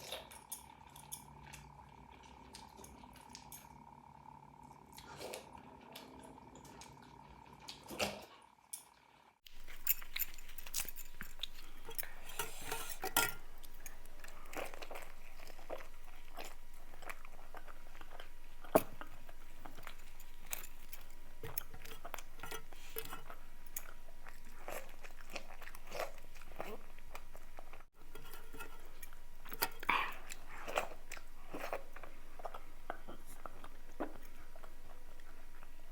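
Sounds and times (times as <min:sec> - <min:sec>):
dishes clinking: 0:09.5 - 0:24.0
chewing and mouth sounds: 0:09.5 - 0:35.9.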